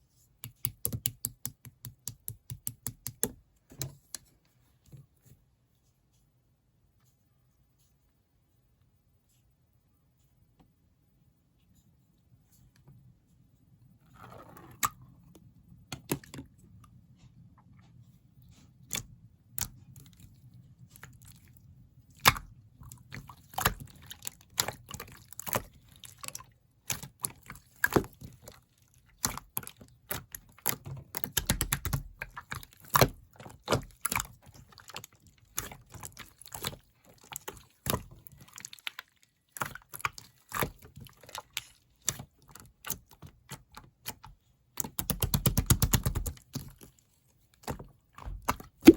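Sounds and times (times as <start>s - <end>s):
slime squishing with sticky clicks: 0.3s - 4.4s, 14.7s - 47.0s, 47.6s - 48.9s.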